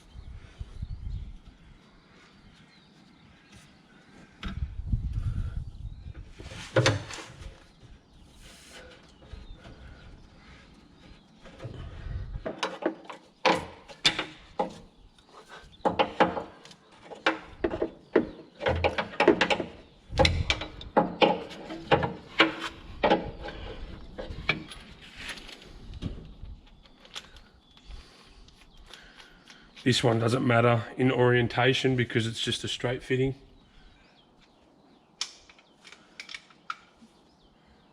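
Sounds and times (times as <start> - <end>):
clicks and knocks of tools: 35.2 - 37.1.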